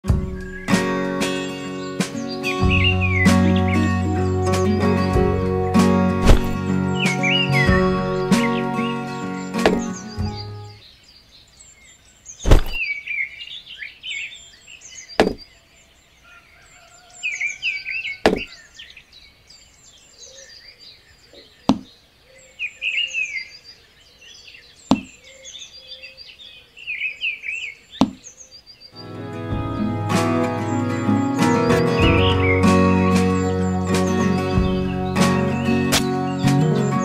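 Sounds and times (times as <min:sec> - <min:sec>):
small birds chirping: 0:00.0 - 0:37.0
sharp taps of pieces set down: 0:09.6 - 0:10.0, 0:15.2 - 0:15.4, 0:18.3 - 0:18.5.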